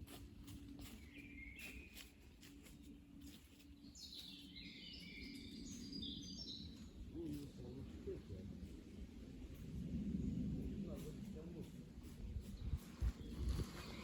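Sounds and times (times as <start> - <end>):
birds chirping: 0.4 - 9.2.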